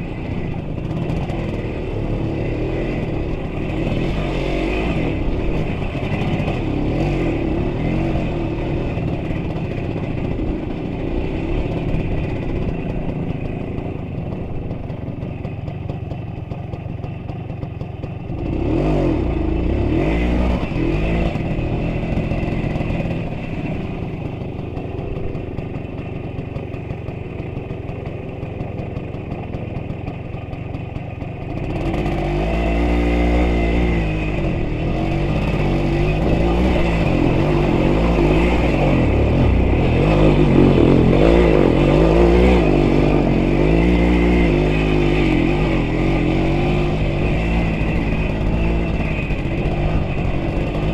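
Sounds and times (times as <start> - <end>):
vehicle engine revving under load: 31.6 - 50.9.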